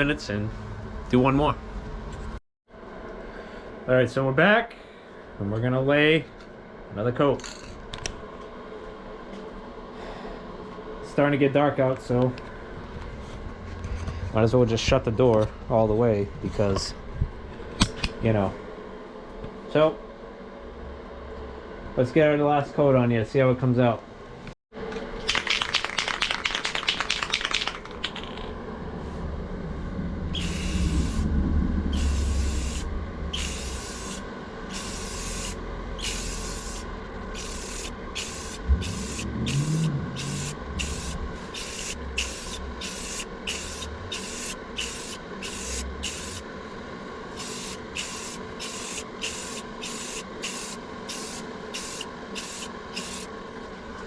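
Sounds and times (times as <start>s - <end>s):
steady low hum: 0.0s - 25.0s, 27.8s - 54.0s
quick rapid rattle: 25.3s - 28.5s
spray gun hissing bursts: 30.4s - 31.2s, 32.0s - 36.8s, 37.4s - 46.4s, 47.4s - 53.3s.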